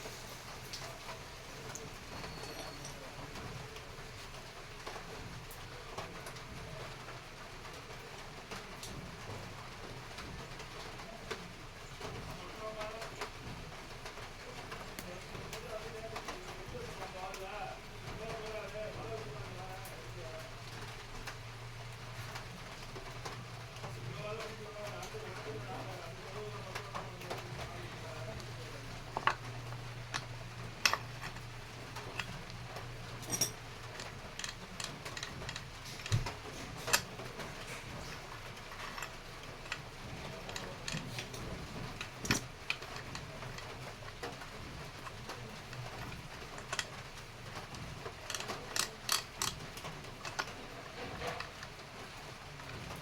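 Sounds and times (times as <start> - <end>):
metallic clicks of tools: 33.2 - 37.1.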